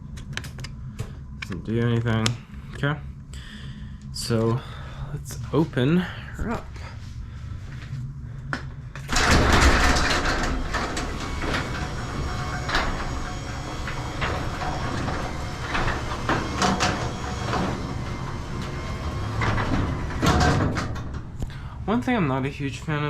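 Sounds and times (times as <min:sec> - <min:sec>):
door and rail clicks and rattles: 0:09.0 - 0:21.6
garage door opener running: 0:09.0 - 0:22.6.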